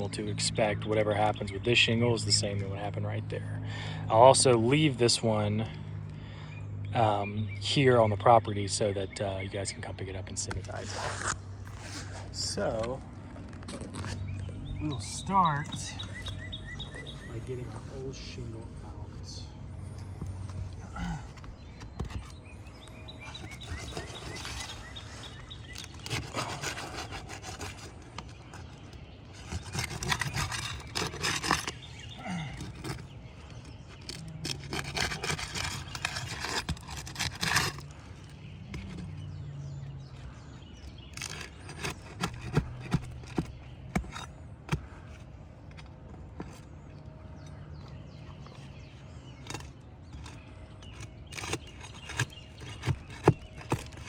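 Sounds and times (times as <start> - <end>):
roof shingles scraping: 20.4 - 39.2, 40.3 - 45.3, 49.4 - 54.0.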